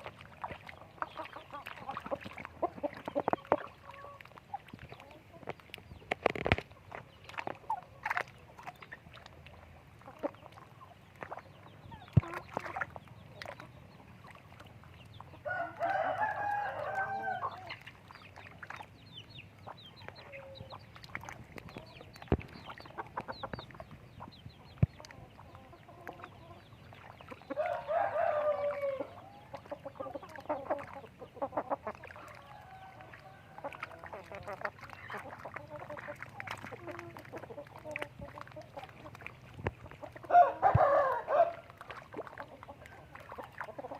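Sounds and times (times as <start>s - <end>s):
chickens clucking: 0.0s - 43.9s
rooster crowing: 15.5s - 17.5s, 27.6s - 29.0s, 40.3s - 41.6s.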